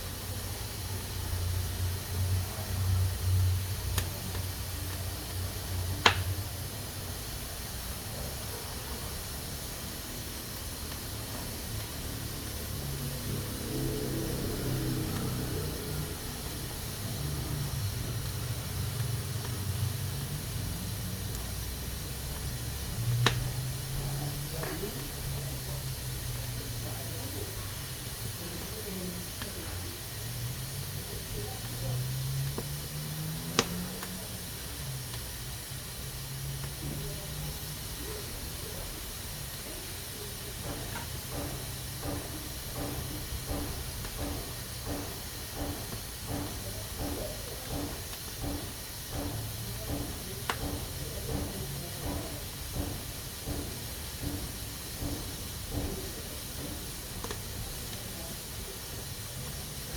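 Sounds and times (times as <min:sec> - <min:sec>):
pressure cooker hissing: 0:00.0 - 0:59.9.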